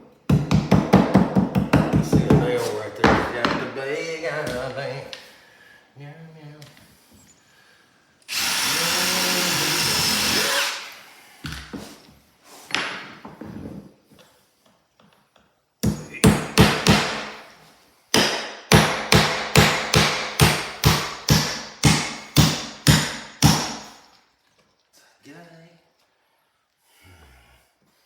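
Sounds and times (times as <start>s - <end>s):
power drill running: 8.3s - 11.0s
hammer striking: 15.8s - 17.4s, 18.2s - 24.1s.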